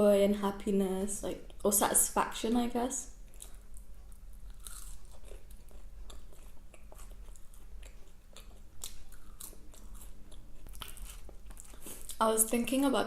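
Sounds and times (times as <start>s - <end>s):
chewing with wet mouth clicks: 3.2s - 12.2s
small food crunches: 3.2s - 12.2s.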